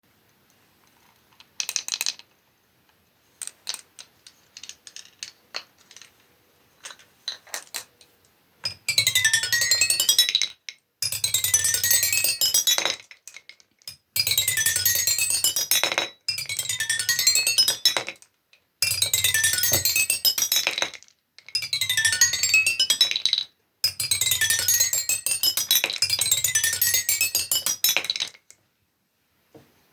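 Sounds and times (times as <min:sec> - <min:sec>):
marbles clinking: 0:03.4 - 0:06.2, 0:08.6 - 0:18.2, 0:18.8 - 0:28.6
marbles rolling on xylophone bars: 0:03.4 - 0:06.2, 0:08.6 - 0:28.6.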